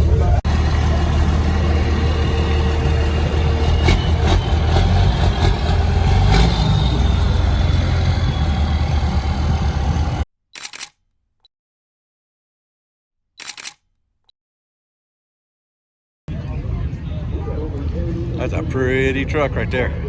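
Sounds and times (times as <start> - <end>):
truck engine idling: 0.0 - 10.2.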